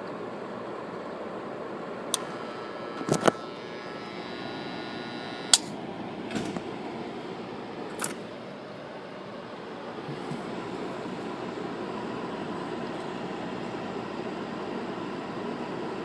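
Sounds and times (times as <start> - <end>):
air conditioner running: 0.0 - 16.0
sharp clicks: 2.1 - 5.8.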